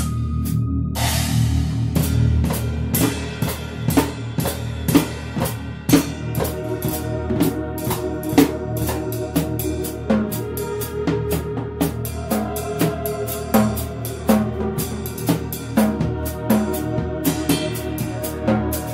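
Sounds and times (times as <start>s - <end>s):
cymbal crash: 0.0s - 10.0s
bass line: 0.0s - 18.9s
held instrument notes: 0.0s - 18.9s.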